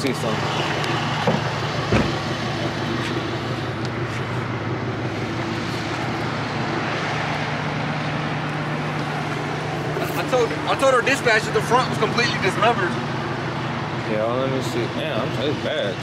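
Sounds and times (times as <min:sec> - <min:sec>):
roadside traffic: 0:00.0 - 0:16.0
vehicle engine idling: 0:00.0 - 0:16.0
sharp thump: 0:01.2 - 0:02.2.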